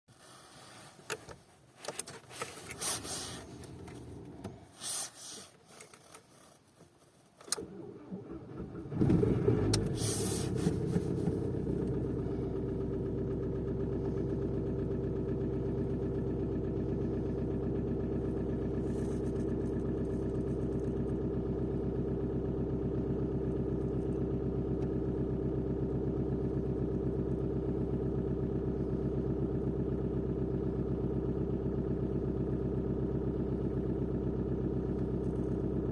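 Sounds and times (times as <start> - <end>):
diesel engine starting and idling: 2.5 - 4.8, 7.5 - 35.9.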